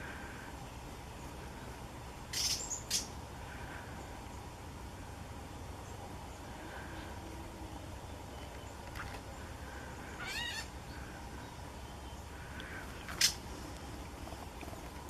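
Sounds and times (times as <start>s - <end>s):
bird mewing call: 2.3s - 3.8s, 6.4s - 14.9s
faint short bird calls: 2.3s - 4.2s, 5.9s - 14.9s
sharp bird chip: 2.4s - 3.1s.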